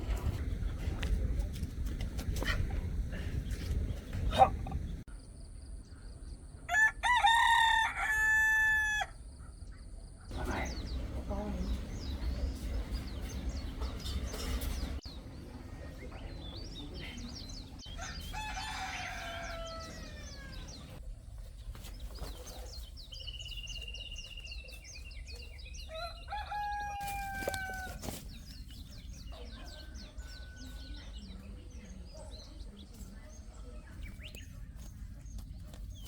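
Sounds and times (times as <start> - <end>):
rooster crowing: 6.7 - 9.1, 18.0 - 20.8, 25.9 - 28.0
small birds chirping: 9.4 - 36.0.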